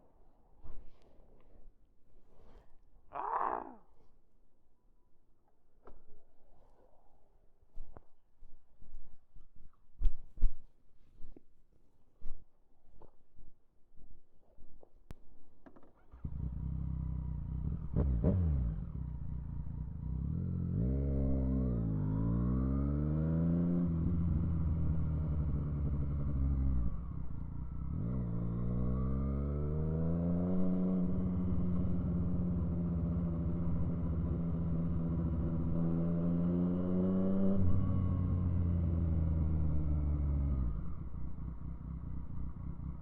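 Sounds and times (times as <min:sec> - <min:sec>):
motorcycle engine revving: 0:16.1 - 0:43.0.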